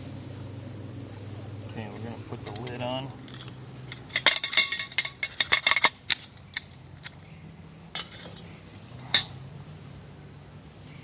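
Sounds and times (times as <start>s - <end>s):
metal pot lid clattering: 2.4s - 7.2s, 8.0s - 9.4s.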